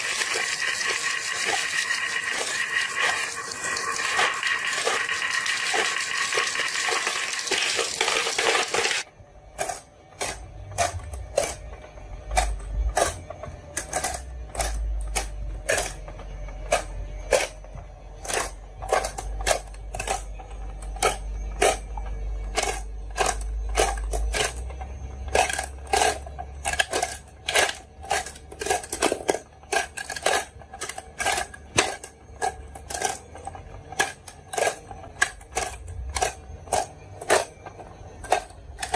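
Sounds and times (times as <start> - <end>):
marbles clacking on wooden run: 0.0 - 9.1
rushing clatter of marbles: 0.0 - 9.1.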